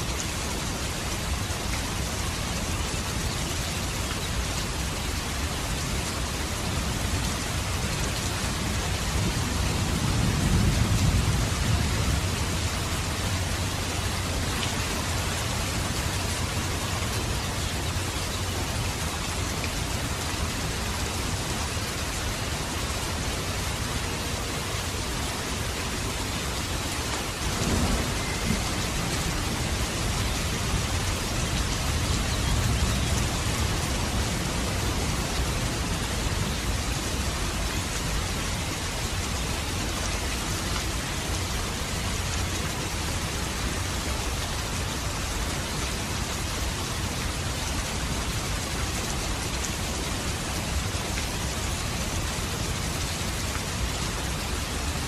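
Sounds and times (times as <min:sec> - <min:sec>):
steady rain: 0:00.0 - 0:55.0
low thunder rumble: 0:27.4 - 0:36.8.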